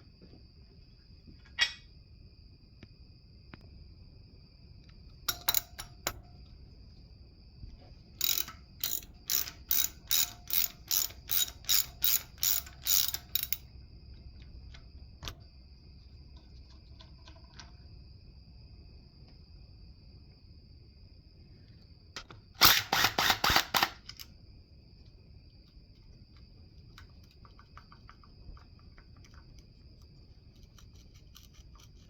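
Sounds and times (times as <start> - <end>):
ratchet wrench clicking: 5.3 - 6.2, 8.2 - 13.6, 22.6 - 24.3, 30.6 - 32.0.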